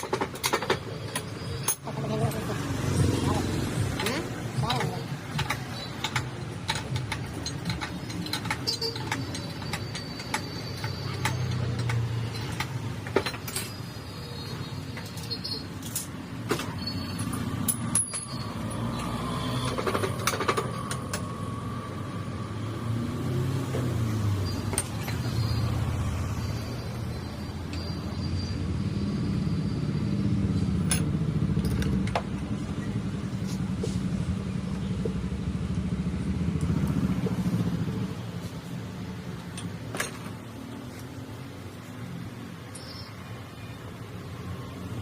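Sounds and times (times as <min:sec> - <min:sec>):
passing road traffic: 0:00.0 - 0:45.0
metal tool clinks and knocks: 0:04.0 - 0:21.3, 0:24.4 - 0:25.7, 0:30.8 - 0:32.6, 0:39.2 - 0:41.0.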